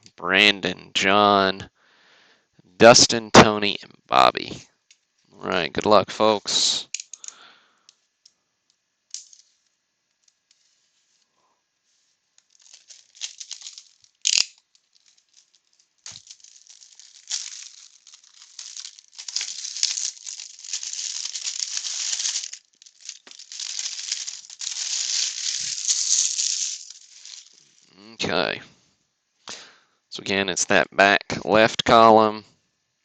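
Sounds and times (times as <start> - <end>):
wax paper packs crinkling: 12.4 - 27.9.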